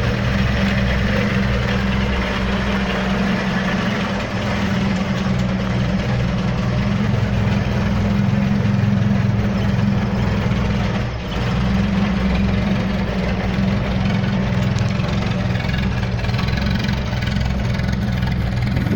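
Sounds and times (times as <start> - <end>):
pickup engine idling: 0.0 - 18.9.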